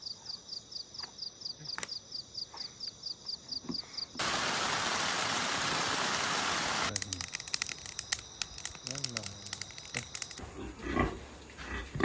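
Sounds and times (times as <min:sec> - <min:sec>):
click: 0:06.9 - 0:10.4.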